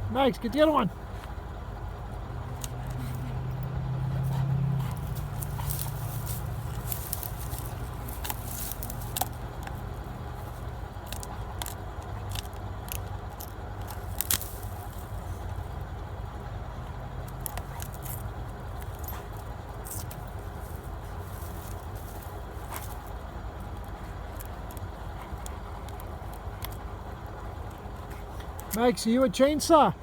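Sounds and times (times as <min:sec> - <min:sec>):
steady low hum: 0:00.0 - 0:30.0
dog chewing and tearing at tree: 0:02.3 - 0:15.9, 0:16.6 - 0:28.9
wood cracking and snapping: 0:05.0 - 0:15.6, 0:17.2 - 0:28.8.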